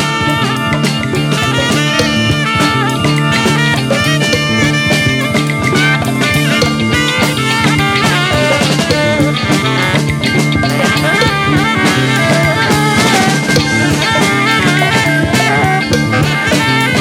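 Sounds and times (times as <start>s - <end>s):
drum kit: 0.0s - 17.0s
electric guitar: 0.0s - 17.0s
repeating bass line: 0.0s - 17.0s.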